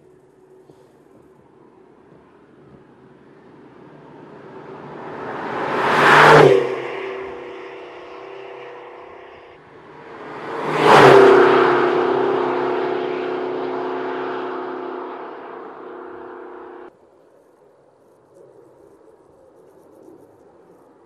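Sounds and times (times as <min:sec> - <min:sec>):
sports car passing at speed: 0:02.0 - 0:16.9.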